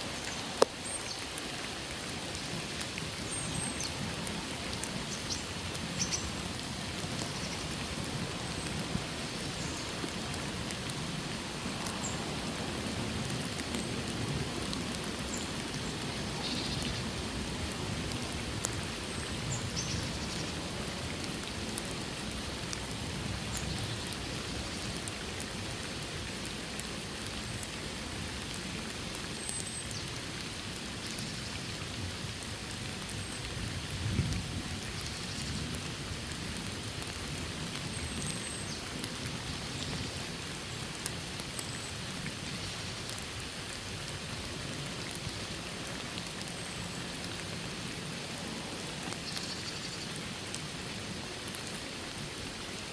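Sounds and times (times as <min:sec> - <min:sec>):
rain falling in a forest: 0:00.0 - 0:52.9
sharp drips and taps: 0:00.2 - 0:17.1, 0:17.7 - 0:31.4.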